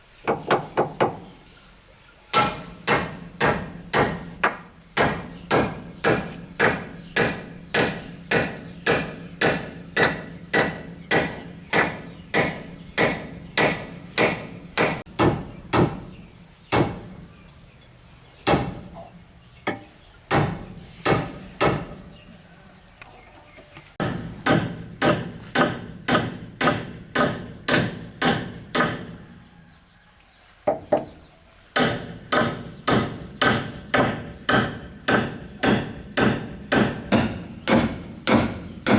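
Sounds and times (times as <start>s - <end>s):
hand tool striking wood: 2.3s - 16.1s, 16.7s - 17.1s, 18.4s - 19.0s, 19.7s - 22.1s, 24.0s - 29.2s, 30.7s - 31.2s, 31.8s - 38.9s.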